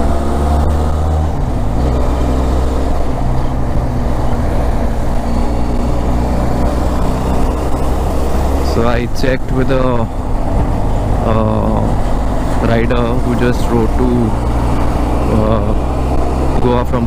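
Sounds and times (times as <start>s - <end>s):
motorcycle engine cruising: 0.0s - 17.0s
road noise: 0.0s - 17.0s.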